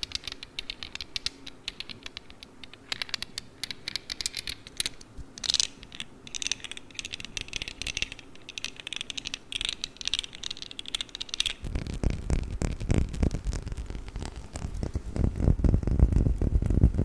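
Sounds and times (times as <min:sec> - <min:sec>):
rubbing handling noise: 0:10.4 - 0:17.0.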